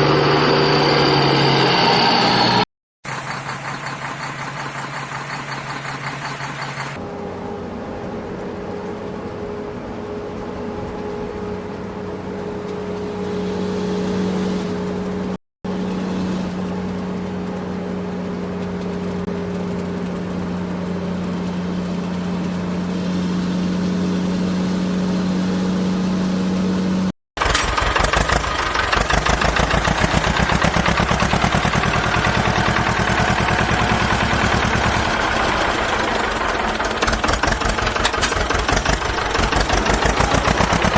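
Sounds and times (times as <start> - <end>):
engine droning hum: 0.0 - 40.9
rapid chugging engine idle: 3.1 - 7.0, 27.4 - 40.9.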